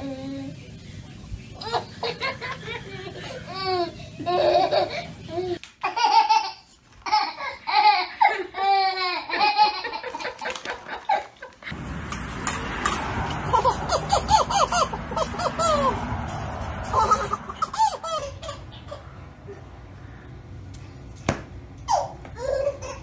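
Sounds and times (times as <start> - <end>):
low background hum: 0.0 - 23.0
high-pitched laughter: 1.6 - 11.7, 13.3 - 16.2, 16.8 - 19.7.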